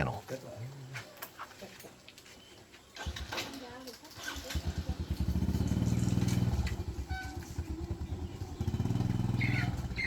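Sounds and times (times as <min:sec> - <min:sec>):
small engine running: 0:04.2 - 0:10.0.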